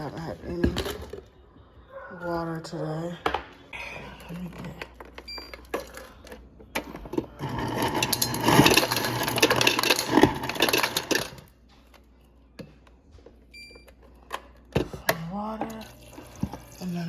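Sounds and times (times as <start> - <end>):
refrigerator dispenser running: 6.8 - 11.5.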